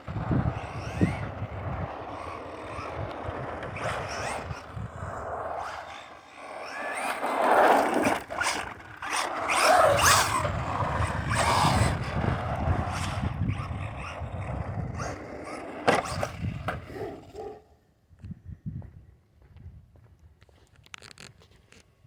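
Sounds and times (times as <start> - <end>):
electric motor whining: 0.0 - 16.9
tyres rolling on pavement: 0.0 - 17.3.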